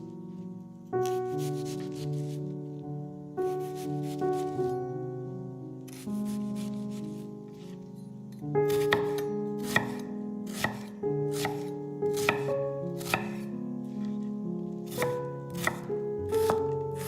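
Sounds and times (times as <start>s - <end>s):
background music: 0.0s - 17.0s
knife chopping on cutting board: 8.7s - 13.5s, 14.9s - 17.0s.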